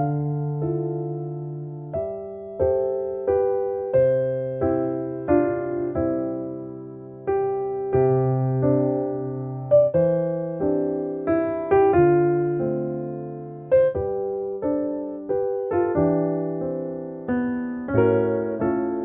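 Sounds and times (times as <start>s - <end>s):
gentle piano melody: 0.0s - 19.0s.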